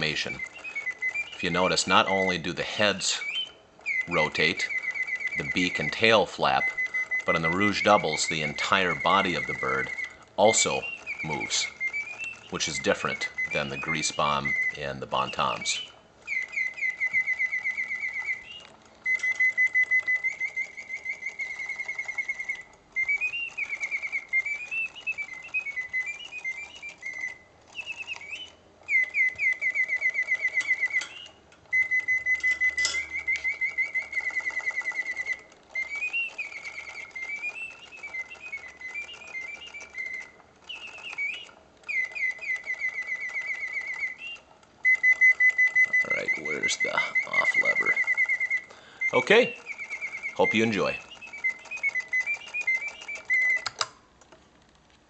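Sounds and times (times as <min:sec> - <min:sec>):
mechanical singing bird trilling: 0:00.0 - 0:53.9.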